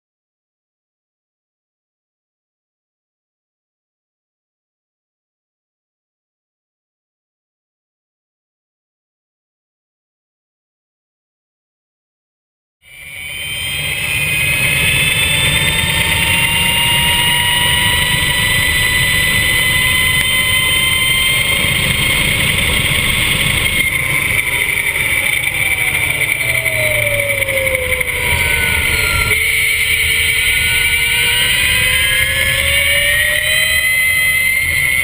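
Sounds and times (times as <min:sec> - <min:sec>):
electric motor whine: 0:12.9 - 0:35.0
low rushing noise: 0:12.9 - 0:35.0.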